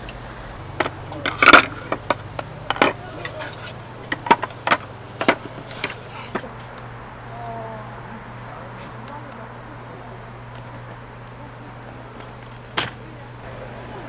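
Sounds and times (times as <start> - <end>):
hard objects clicking and knocking: 0.0 - 6.5
steady low hum: 0.0 - 14.0.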